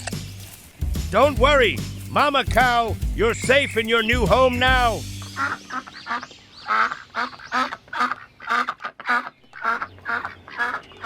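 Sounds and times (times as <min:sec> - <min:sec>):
duck quacking: 0:04.3 - 0:11.0.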